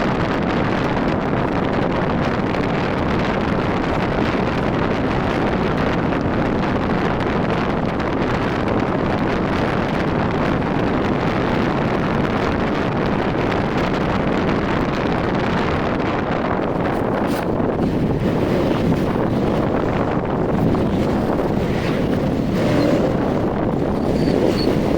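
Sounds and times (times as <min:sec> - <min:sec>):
road noise: 0:00.0 - 0:24.9
wind on microphone: 0:00.0 - 0:24.9
motorcycle engine: 0:16.6 - 0:24.9.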